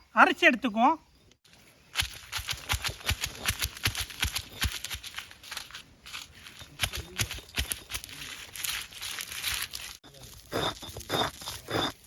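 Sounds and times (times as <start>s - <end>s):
stone roller crunching spices: 1.9s - 12.0s
stone rasping grind: 10.3s - 12.0s.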